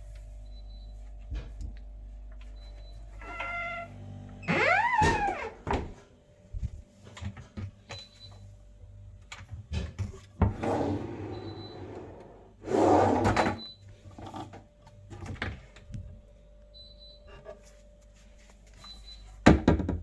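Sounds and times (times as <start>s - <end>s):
drawer sliding rush: 10.5s - 13.6s.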